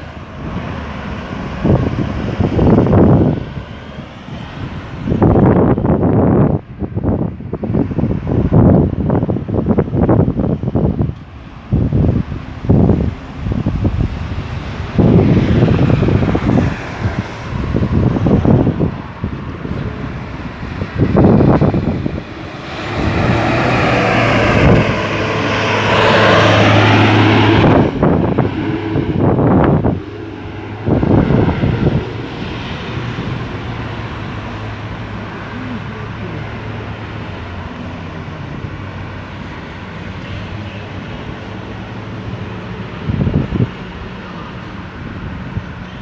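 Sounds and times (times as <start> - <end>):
steady traffic hum: 0.0 - 46.0
large vehicle engine passing: 11.7 - 45.8.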